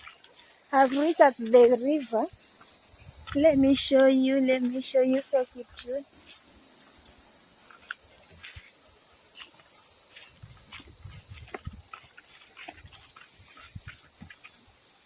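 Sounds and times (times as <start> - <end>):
insects shrill drone: 0.0 - 15.0
low thuds: 3.0 - 4.1.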